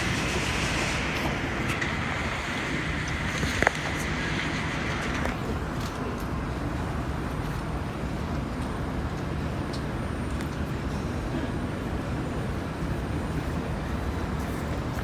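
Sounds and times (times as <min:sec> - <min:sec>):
high hiss: 0:00.0 - 0:05.8
metro train running rumble: 0:00.0 - 0:15.0.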